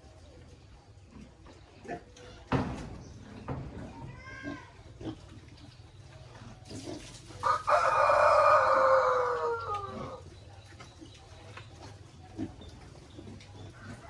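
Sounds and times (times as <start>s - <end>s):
rooster crowing: 7.4s - 10.2s.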